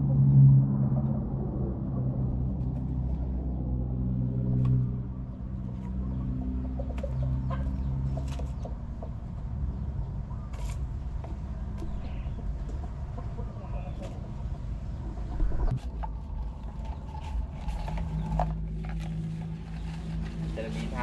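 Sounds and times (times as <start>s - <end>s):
low steady hum: 0.0s - 21.0s
chickens clucking: 4.5s - 18.6s.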